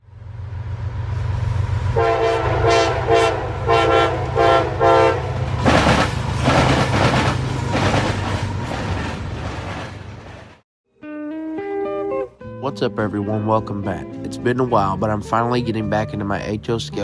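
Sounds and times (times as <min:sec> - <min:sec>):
diesel locomotive rumbling: 0:00.0 - 0:10.6
train horn blasts: 0:01.9 - 0:05.4
train clattering over rails: 0:04.2 - 0:10.6.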